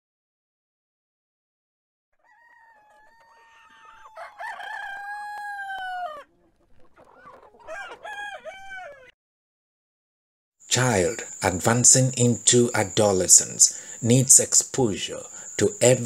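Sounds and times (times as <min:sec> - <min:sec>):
bird calling: 0:10.7 - 0:16.0.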